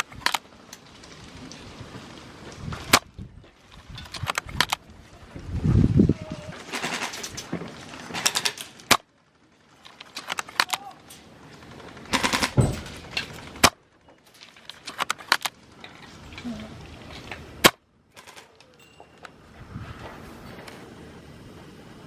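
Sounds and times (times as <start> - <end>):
airsoft rifle shot cracks: 8.2 - 9.1, 13.6 - 13.8, 17.6 - 18.4.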